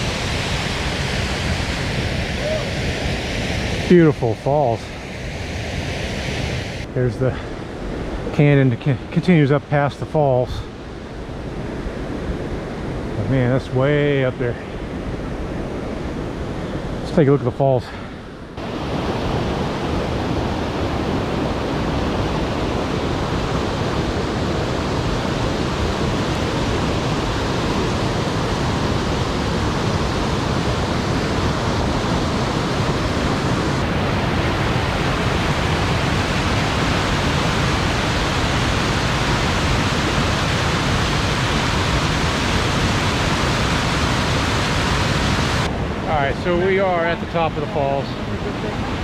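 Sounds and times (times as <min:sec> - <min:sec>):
waterfall rushing: 0:00.0 - 0:04.5, 0:18.6 - 0:49.0.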